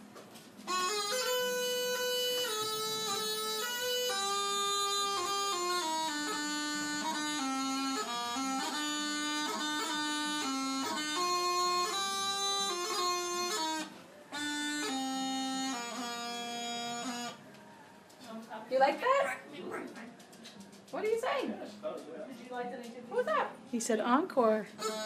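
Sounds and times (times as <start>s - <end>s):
bagpipe melody over drone: 0.6s - 17.4s, 24.8s - 25.0s.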